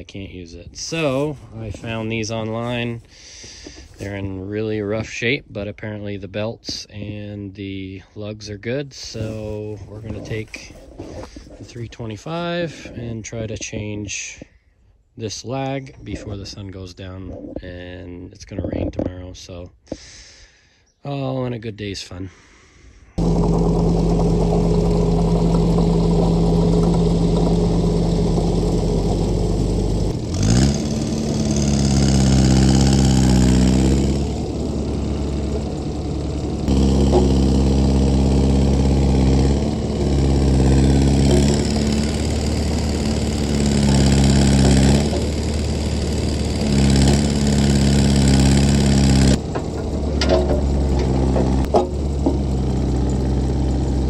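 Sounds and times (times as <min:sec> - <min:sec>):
excavator engine running: 0:00.0 - 0:06.4, 0:08.6 - 0:13.2, 0:23.2 - 0:54.0.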